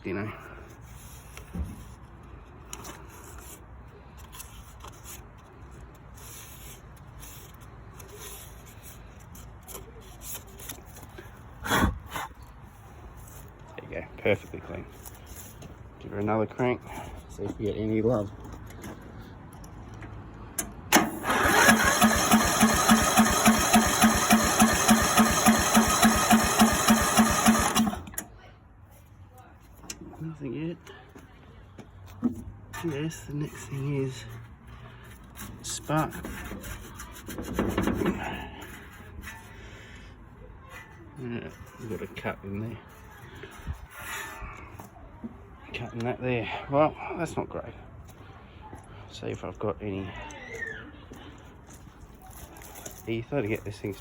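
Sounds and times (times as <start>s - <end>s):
electric starter cranking engine: 20.9s - 28.3s.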